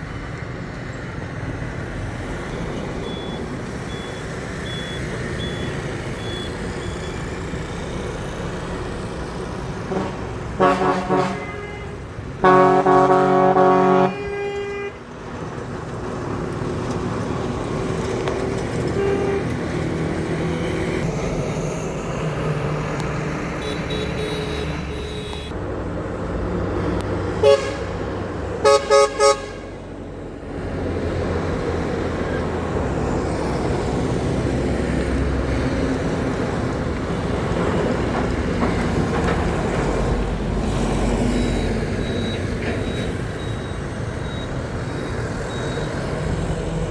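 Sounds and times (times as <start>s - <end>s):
road noise: 0.0s - 46.9s
truck engines running: 0.0s - 46.9s
truck horns: 9.6s - 15.6s, 18.7s - 21.2s, 22.9s - 25.6s, 27.3s - 30.4s.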